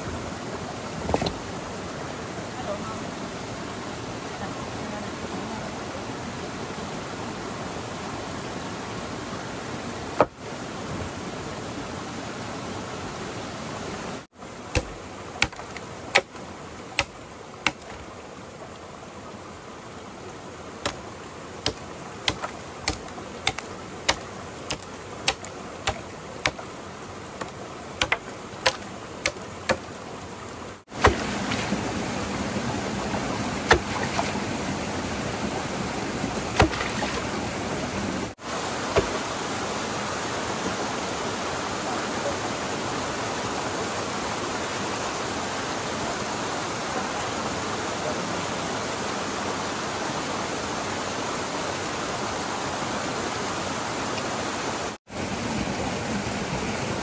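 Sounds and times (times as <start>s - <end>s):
stream water rushing: 0.0s - 57.0s
sharp knocks: 14.7s - 16.4s, 17.0s - 18.0s, 21.6s - 26.6s, 27.4s - 29.9s.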